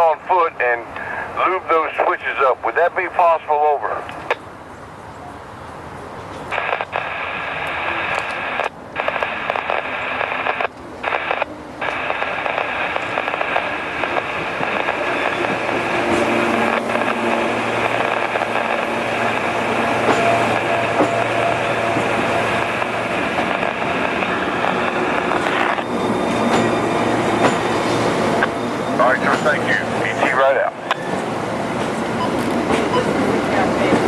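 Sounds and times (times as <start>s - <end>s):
scanner radio static hiss: 0.0s - 4.1s, 6.5s - 19.8s, 20.4s - 25.8s, 30.0s - 31.0s
diesel locomotive hum: 0.0s - 34.0s.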